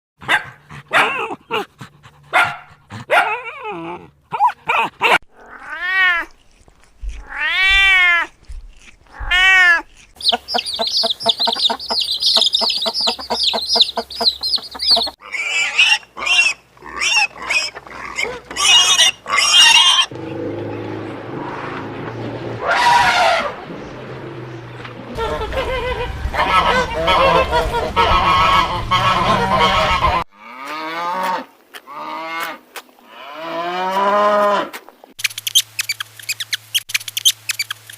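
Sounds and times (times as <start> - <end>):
animal calls: 4.4 - 21.0
cat meowing: 9.1 - 9.8.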